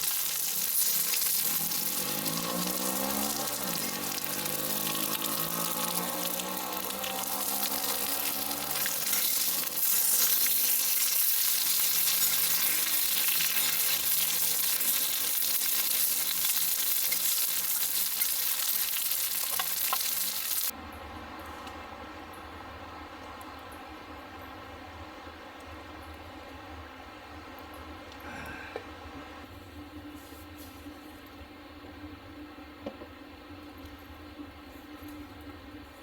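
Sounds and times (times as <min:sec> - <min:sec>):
food sizzling in a pan: 0:00.0 - 0:20.7.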